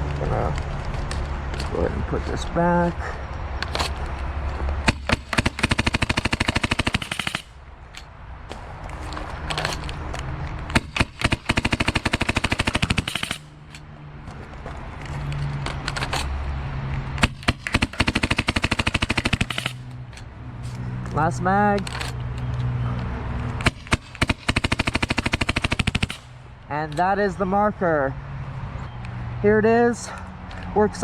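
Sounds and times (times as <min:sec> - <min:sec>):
paintball marker firing bursts: 0:04.8 - 0:07.6, 0:10.7 - 0:13.8, 0:17.2 - 0:20.0, 0:23.6 - 0:26.4.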